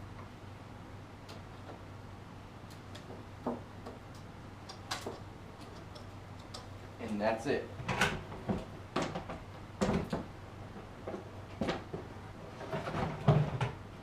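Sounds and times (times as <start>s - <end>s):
low steady hum: 0.0s - 14.0s
light clicks and taps: 2.7s - 6.7s.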